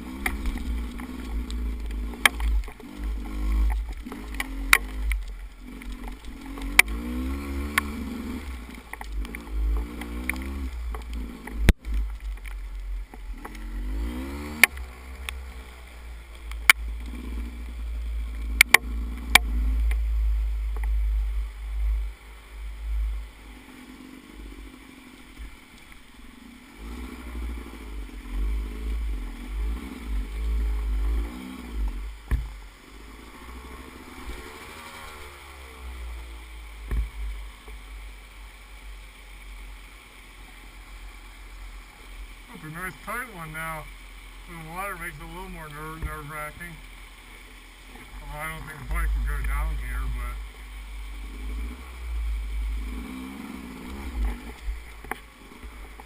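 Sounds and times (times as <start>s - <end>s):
motorcycle engine revving: 0.0s - 56.0s
sharp clicks and knocks: 0.2s - 7.0s.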